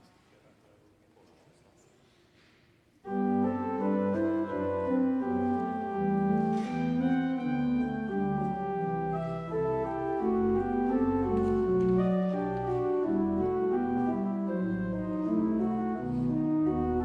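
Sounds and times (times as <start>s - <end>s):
organ playing chords: 3.1s - 17.0s.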